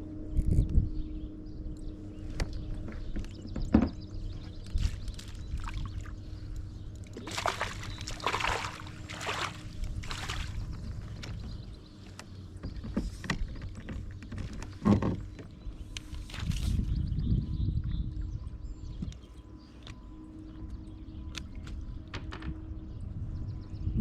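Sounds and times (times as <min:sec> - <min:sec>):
faint low hum: 0:00.0 - 0:24.0
water splashing against kayak: 0:07.0 - 0:11.6.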